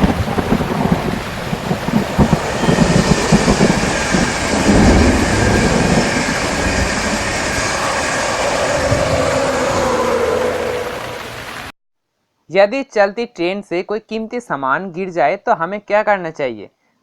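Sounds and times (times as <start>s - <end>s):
train rumbling on track: 0.0s - 11.7s.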